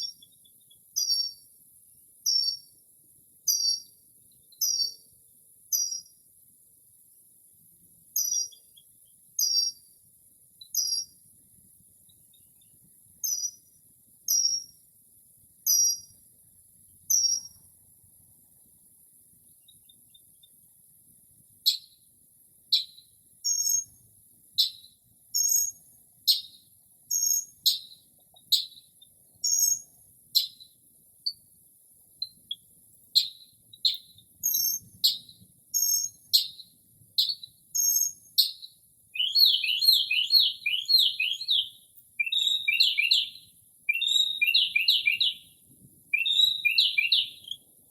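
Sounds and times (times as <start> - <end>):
mockingbird singing: 0.0 - 1.4, 2.2 - 2.7, 3.5 - 3.9, 8.2 - 9.8, 10.6 - 11.2, 24.6 - 31.4, 32.2 - 45.5, 46.1 - 47.6.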